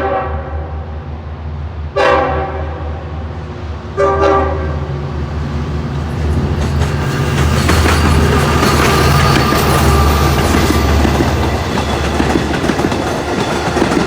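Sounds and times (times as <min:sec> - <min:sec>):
train horn blasts: 0:00.0 - 0:00.9, 0:02.0 - 0:03.2, 0:04.0 - 0:04.9
train wheels clattering on rails: 0:05.9 - 0:14.0.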